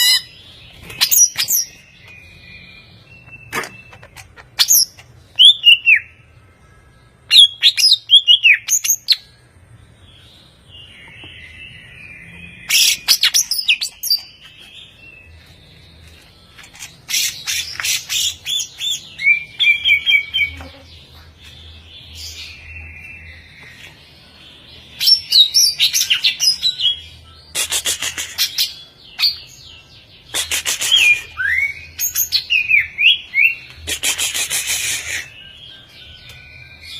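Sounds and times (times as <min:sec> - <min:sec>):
bird singing whistles and chatter: 0:30.3 - 0:36.9.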